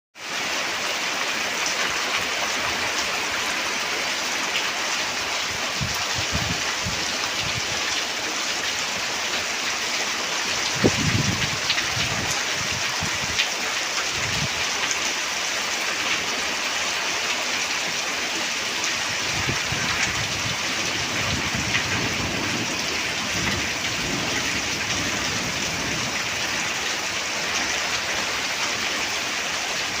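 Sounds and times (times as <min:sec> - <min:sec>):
rain falling: 0:00.2 - 0:30.0.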